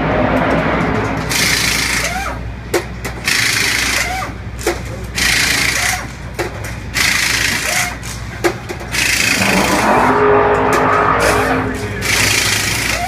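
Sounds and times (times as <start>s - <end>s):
air tools rattling and hissing: 1.3s - 9.8s, 11.8s - 13.0s
steady low hum: 8.9s - 12.9s.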